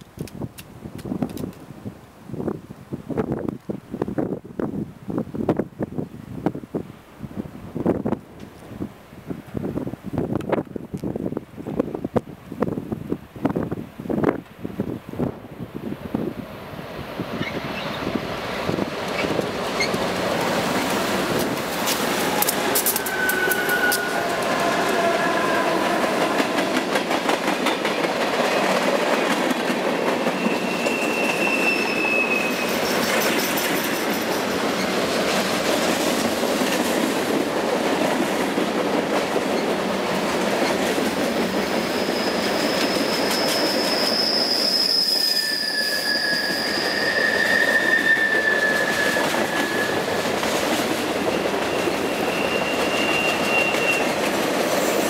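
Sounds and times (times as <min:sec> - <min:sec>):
steel wheels clattering on rail: 0:17.2 - 0:55.0
high-pitched wheel squeals: 0:21.8 - 0:26.5, 0:30.2 - 0:34.2, 0:41.8 - 0:50.2, 0:51.2 - 0:54.2.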